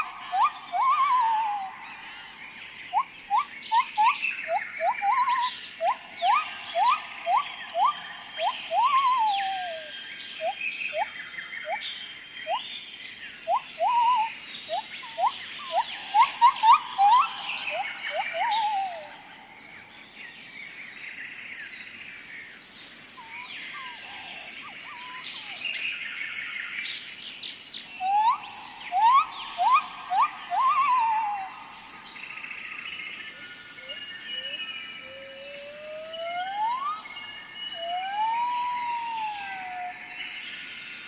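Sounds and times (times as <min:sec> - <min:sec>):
high chirps: 0:00.0 - 0:01.8, 0:02.9 - 0:11.1, 0:13.4 - 0:19.2, 0:28.0 - 0:31.6
high insect-like whine: 0:00.0 - 0:41.0.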